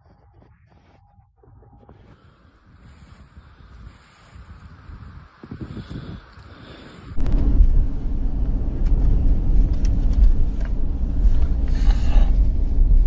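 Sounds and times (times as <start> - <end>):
vehicle engine drone: 5.6 - 13.0.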